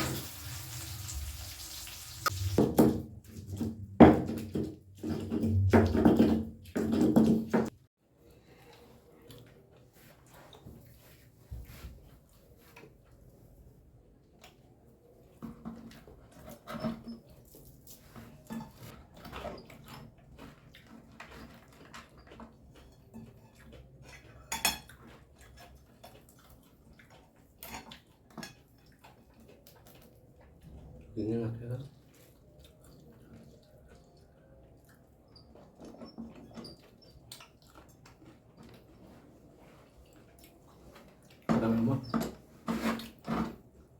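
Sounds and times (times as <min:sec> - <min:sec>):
people chewing food: 0:08.0 - 0:43.9.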